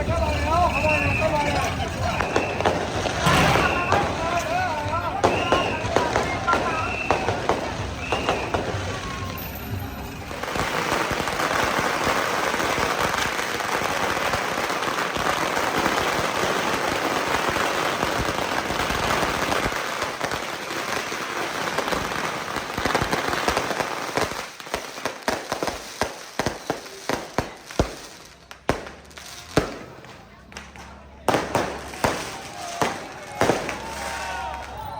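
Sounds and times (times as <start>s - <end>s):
firecrackers going off: 0.0s - 34.9s.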